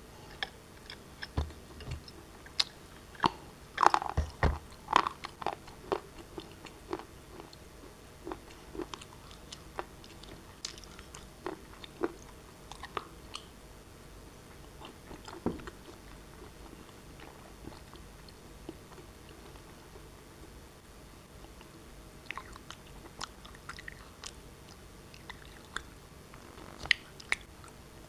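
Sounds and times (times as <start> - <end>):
shale being chewed crunching: 0.2 - 13.5, 21.4 - 27.8.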